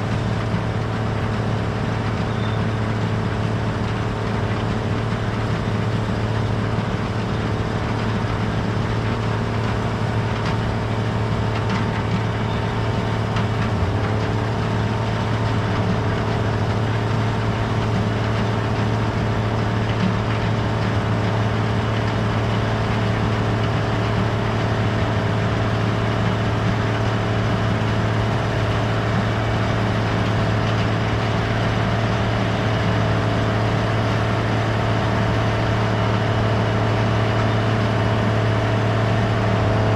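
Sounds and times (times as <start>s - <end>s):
combine engine droning: 0.0s - 39.9s.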